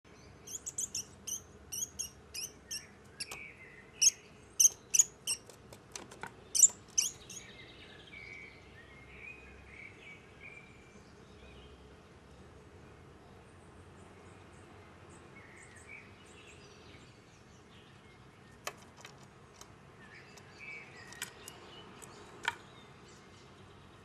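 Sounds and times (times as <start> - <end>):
songbirds chirping: 0.1 - 24.0
soft low bird calls: 0.4 - 5.6, 6.5 - 7.6
sharp clicks: 3.2 - 3.4.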